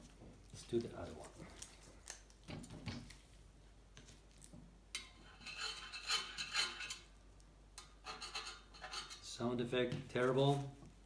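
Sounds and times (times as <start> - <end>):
metal cup scraping and clinking: 5.0 - 7.1, 8.0 - 9.3.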